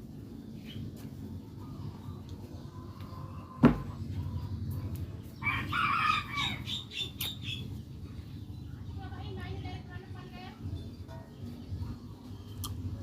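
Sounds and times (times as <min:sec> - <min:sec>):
rooster crowing: 0:05.4 - 0:06.7.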